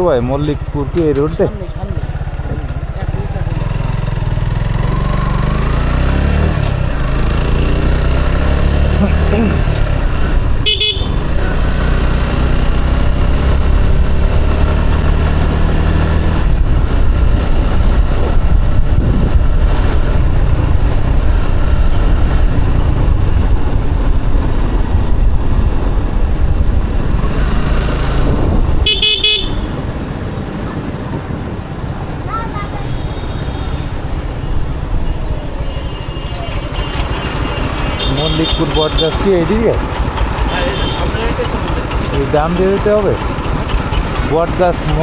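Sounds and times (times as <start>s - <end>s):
motorcycle engine running: 0.0s - 45.0s
road rush while riding: 0.0s - 45.0s
horn honking: 9.0s - 12.1s, 28.8s - 30.2s, 32.3s - 39.6s, 40.4s - 41.7s.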